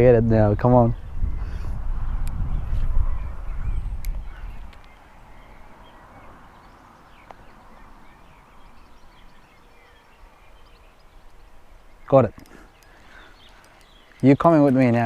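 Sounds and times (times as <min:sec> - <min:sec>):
faint bird chirps: 0:02.4 - 0:15.0.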